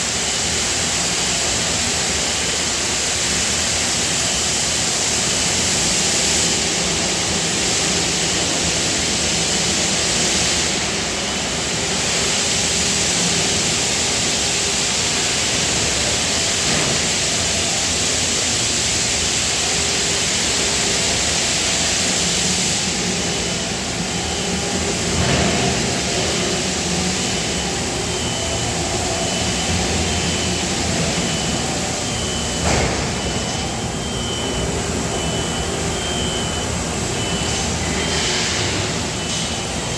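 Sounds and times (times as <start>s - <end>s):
machinery hiss and hum: 0.0s - 39.9s
faint high whine: 22.9s - 39.9s.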